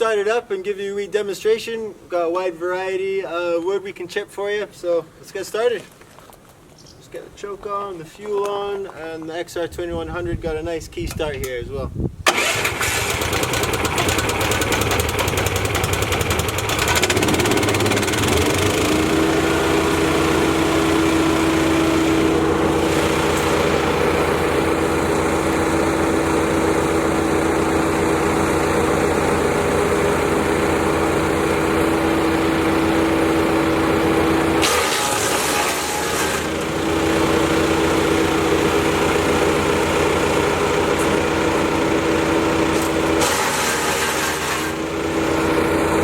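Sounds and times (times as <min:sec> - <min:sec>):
petrol engine running: 0:12.3 - 0:46.0
steady hum: 0:19.1 - 0:42.8.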